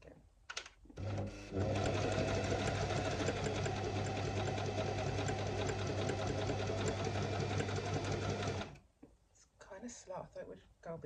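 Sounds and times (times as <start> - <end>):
sewing needle clatter: 0.6 - 8.8
sewing machine motor hum: 1.0 - 8.8.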